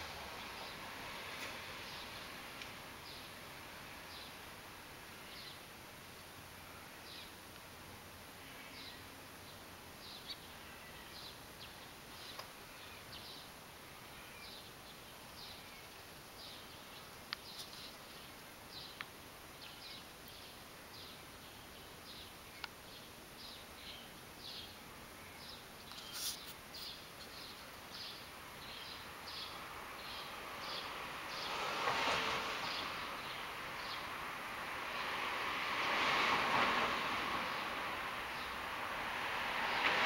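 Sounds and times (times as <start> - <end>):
faint outdoor ambience: 0.0 - 40.0
small bird chirping: 8.4 - 31.6.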